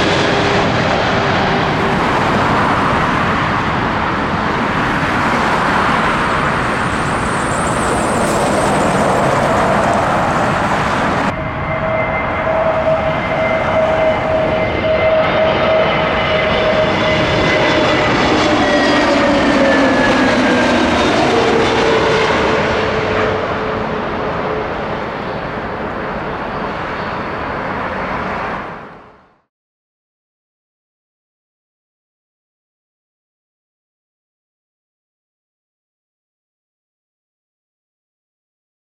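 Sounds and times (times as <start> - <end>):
jet passing by: 0.0 - 29.4
jet engines roaring with whine: 0.0 - 29.5.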